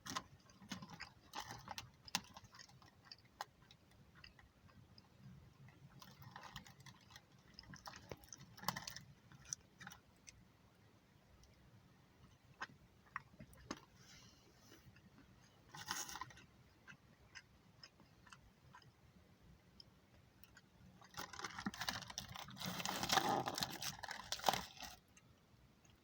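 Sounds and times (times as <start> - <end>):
eating clicks and crunches: 0.0 - 10.4, 15.0 - 19.0, 19.7 - 26.0
food packaging crackling: 21.0 - 25.1.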